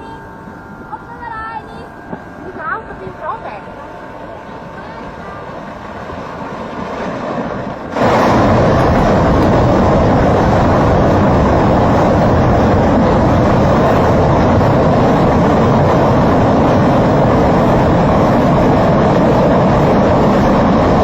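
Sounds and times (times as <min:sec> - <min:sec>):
waterfall rushing: 0:04.6 - 0:21.0.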